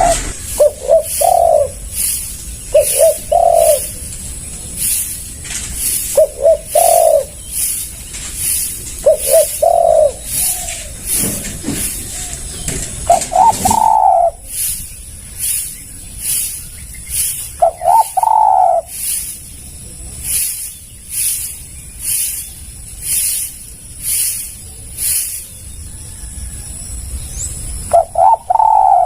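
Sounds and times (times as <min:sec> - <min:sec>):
dove cooing: 0:00.0 - 0:04.0, 0:05.9 - 0:07.8, 0:08.4 - 0:14.6, 0:17.6 - 0:19.0, 0:27.9 - 0:29.0.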